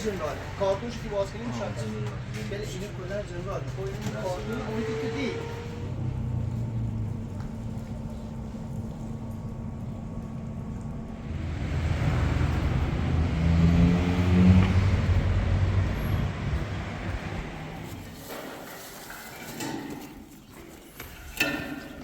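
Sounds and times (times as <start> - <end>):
vehicle engine passing by: 0.0 - 10.2, 11.0 - 18.2.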